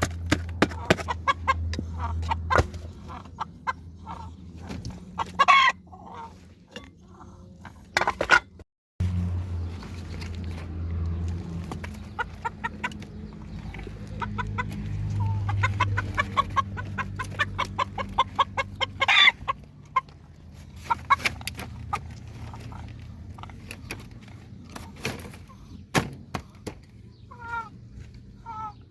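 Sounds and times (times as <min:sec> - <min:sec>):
chickens clucking: 0:00.0 - 0:08.6, 0:09.6 - 0:28.9
chicken squawk: 0:05.1 - 0:06.4, 0:13.9 - 0:20.1, 0:27.2 - 0:28.9.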